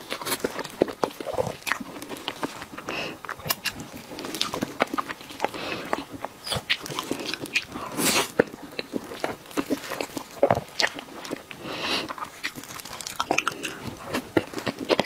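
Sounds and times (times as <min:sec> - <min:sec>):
soft chewing clicks: 0:00.0 - 0:15.0.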